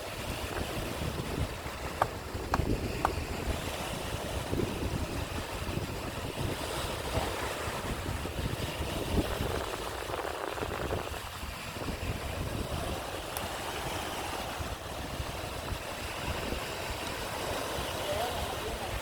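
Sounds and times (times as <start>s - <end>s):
sea waves washing: 0.0s - 19.0s
wind buffeting microphone: 0.0s - 19.0s.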